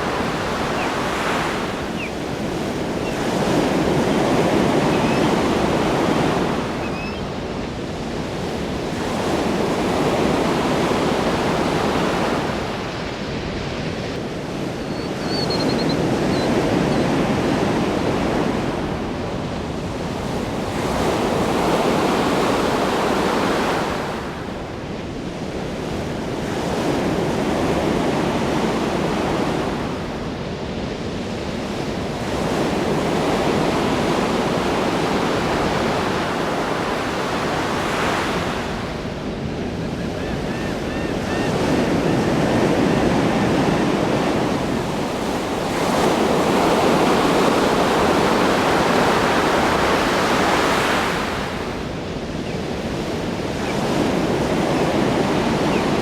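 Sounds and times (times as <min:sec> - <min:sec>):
ocean waves crashing on shore: 0:00.0 - 0:56.0.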